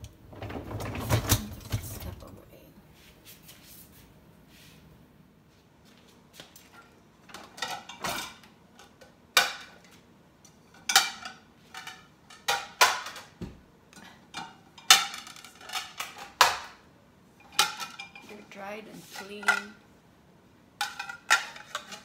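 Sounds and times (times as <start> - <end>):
dishes and cutlery clinking: 6.6 - 9.9, 17.4 - 18.4, 19.1 - 19.8, 20.8 - 22.0.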